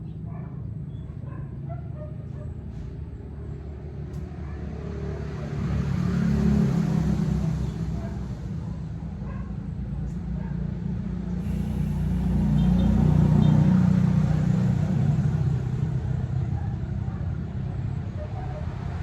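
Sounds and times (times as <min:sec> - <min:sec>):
vehicle passing by: 0:03.8 - 0:09.0, 0:11.1 - 0:19.0.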